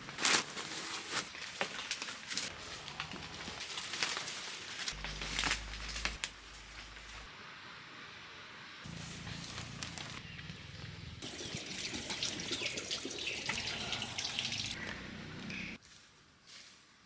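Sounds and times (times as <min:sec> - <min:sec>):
water pouring and splashing: 0:11.2 - 0:14.8.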